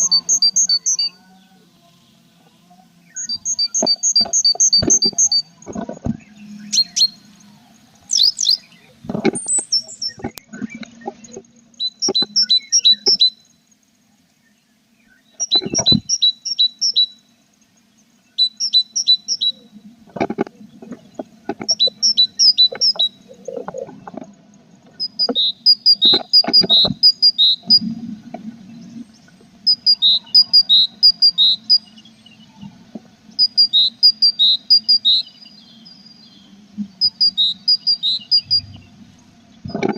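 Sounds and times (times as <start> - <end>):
nestlings chirping: 0.0 - 1.2, 3.1 - 13.6, 15.2 - 19.8, 20.6 - 24.2, 24.8 - 27.9, 28.6 - 32.6, 33.3 - 39.9
steady low hum: 0.0 - 39.9
birds knocking and scraping box: 3.8 - 6.4, 9.0 - 12.4, 15.5 - 16.1, 20.1 - 27.1, 39.6 - 39.9.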